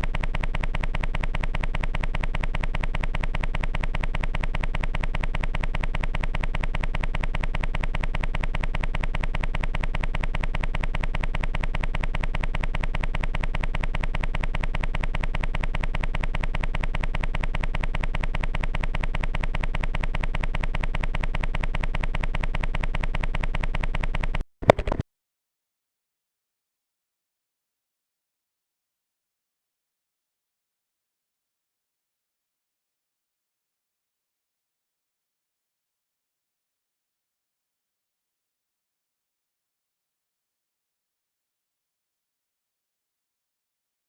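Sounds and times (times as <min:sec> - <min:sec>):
fast even machine-like pulse: 0:00.0 - 0:25.0.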